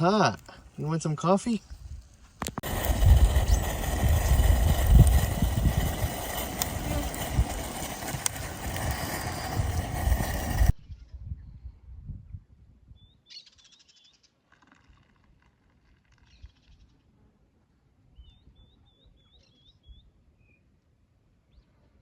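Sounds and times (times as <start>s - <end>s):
small bird chirping: 2.9s - 4.6s.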